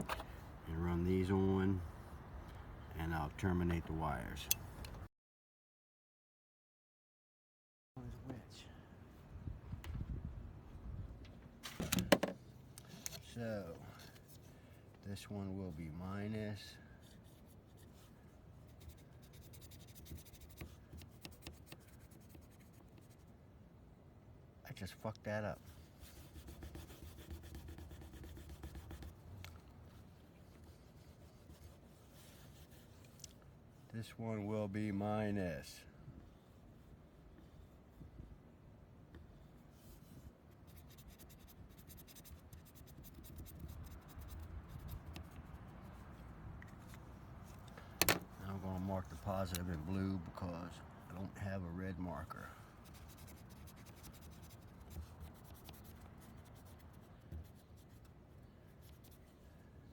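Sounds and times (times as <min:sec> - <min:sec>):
marker scratching on wire: 0:17.0 - 0:23.4, 0:25.6 - 0:29.6, 0:39.1 - 0:48.4, 0:52.8 - 0:59.5
marker pen scratching on wire: 0:18.7 - 0:23.2, 0:26.1 - 0:29.2, 0:52.8 - 0:58.1.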